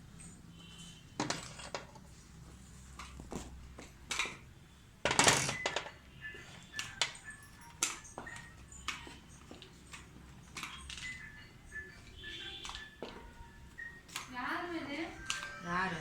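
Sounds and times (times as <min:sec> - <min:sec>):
small parts and tools clattering: 0:01.2 - 0:02.2, 0:02.9 - 0:04.4, 0:05.0 - 0:13.3.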